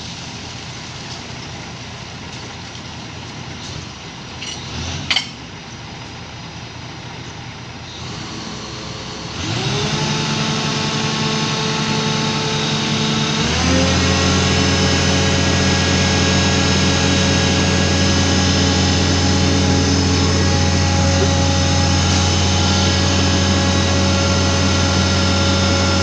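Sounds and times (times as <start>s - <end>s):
steady mechanical noise: 0.3s - 26.0s
motor running: 7.9s - 26.0s.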